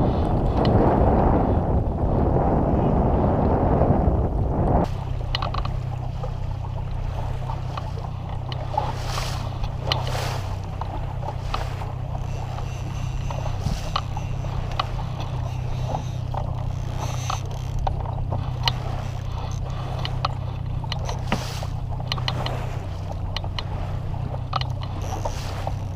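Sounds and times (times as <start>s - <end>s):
boat motor humming: 0.0s - 25.9s
water slapping against hull: 0.0s - 25.9s.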